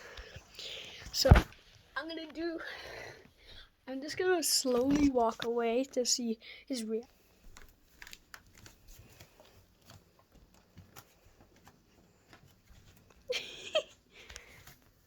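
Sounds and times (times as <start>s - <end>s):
light taps and pattering: 4.0s - 5.8s, 7.1s - 15.0s.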